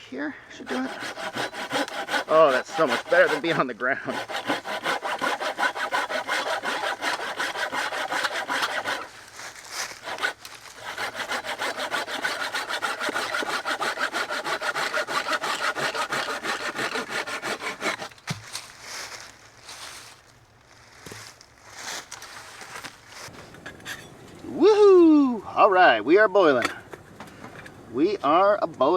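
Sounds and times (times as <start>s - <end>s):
hand saw cutting log: 0.6s - 18.6s.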